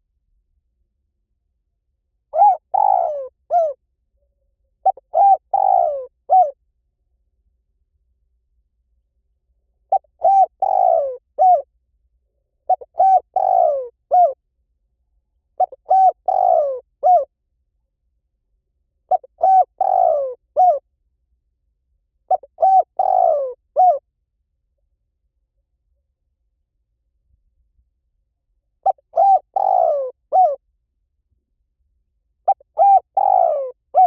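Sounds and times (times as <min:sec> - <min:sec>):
dove cooing: 0:02.3 - 0:03.8, 0:04.8 - 0:06.6, 0:09.9 - 0:11.7, 0:12.7 - 0:14.4, 0:15.6 - 0:17.3, 0:19.1 - 0:20.8, 0:22.3 - 0:24.0, 0:28.8 - 0:30.6, 0:32.5 - 0:34.0.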